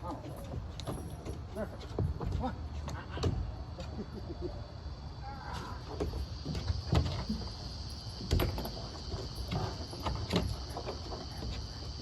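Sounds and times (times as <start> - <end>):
high-pitched insect drone: 4.7 - 12.0.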